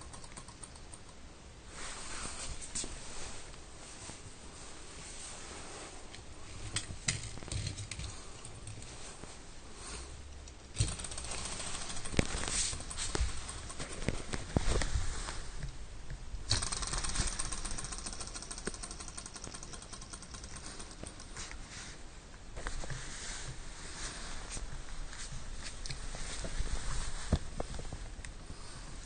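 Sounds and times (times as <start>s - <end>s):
small engine clattering and ticking: 10.8s - 14.2s, 16.5s - 21.3s.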